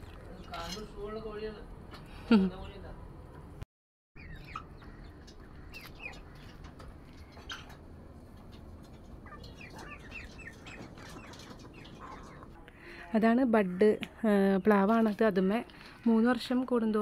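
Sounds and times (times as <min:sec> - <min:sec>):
small birds chirping: 0:04.2 - 0:07.8, 0:08.5 - 0:17.0.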